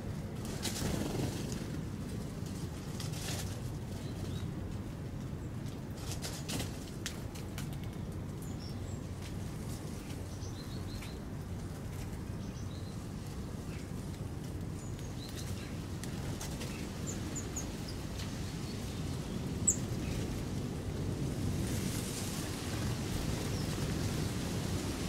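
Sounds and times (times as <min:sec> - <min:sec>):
low outdoor rumble: 0:00.0 - 0:25.0
small birds chirping: 0:03.4 - 0:04.6, 0:07.8 - 0:20.4.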